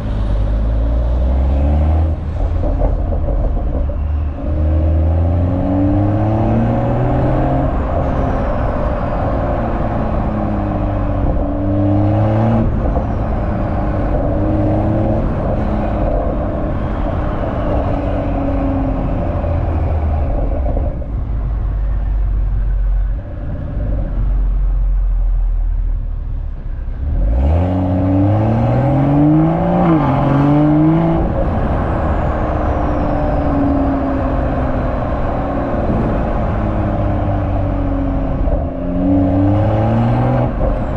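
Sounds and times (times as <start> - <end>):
car exhaust revving: 26.9 - 40.9.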